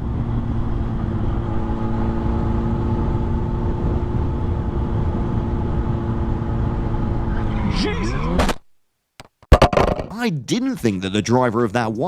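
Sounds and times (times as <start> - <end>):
road rumble: 0.0 - 8.5
vehicle engine drone: 0.0 - 8.5.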